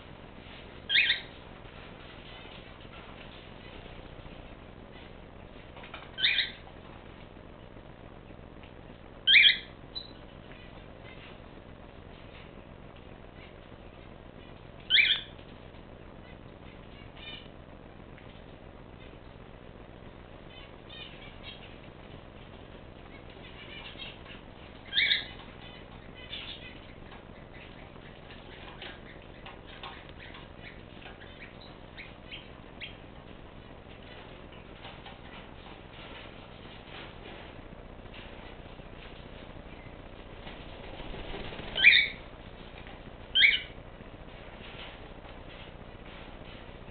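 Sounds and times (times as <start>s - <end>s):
cage birds calling sharply: 0.8s - 1.4s, 5.9s - 6.7s, 9.3s - 11.4s, 14.8s - 15.4s, 16.2s - 17.5s, 20.5s - 21.8s, 23.0s - 33.1s, 38.2s - 42.4s, 43.3s - 43.8s
faint bird chirps: 0.8s - 1.4s, 5.9s - 6.6s, 9.2s - 11.4s, 13.3s - 15.4s, 23.1s - 33.0s, 40.8s - 42.3s, 43.3s - 43.8s.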